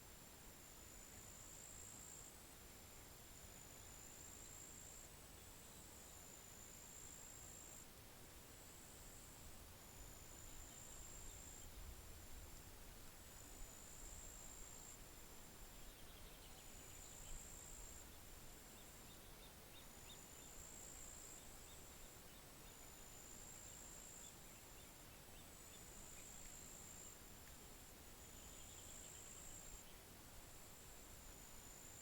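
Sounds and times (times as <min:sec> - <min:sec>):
faint chirps and ticks: 0:00.0 - 0:32.0
insect trill: 0:08.7 - 0:11.7, 0:13.4 - 0:15.0, 0:15.7 - 0:27.2, 0:28.1 - 0:30.0, 0:30.7 - 0:32.0.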